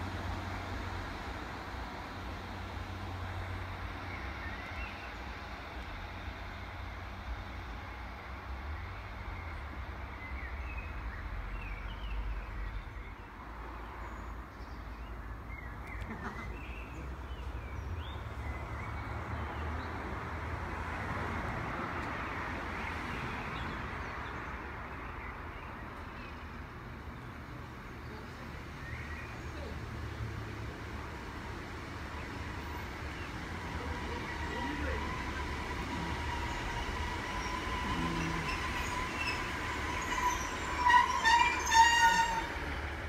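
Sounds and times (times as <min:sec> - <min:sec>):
distant train rumble with hiss: 0:00.0 - 0:14.4, 0:15.4 - 0:43.0
birds chirping: 0:32.1 - 0:43.0.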